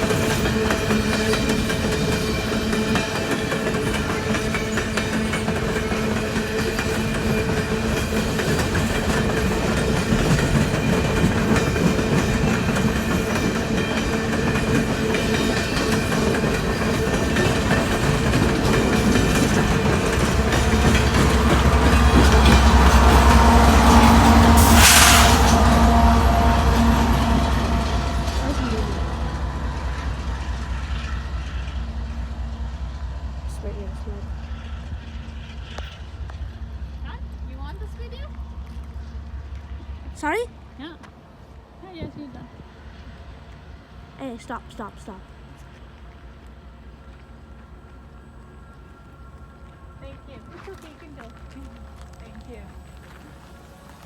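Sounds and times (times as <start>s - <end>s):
train wheels clicking over rails: 0.0s - 32.9s.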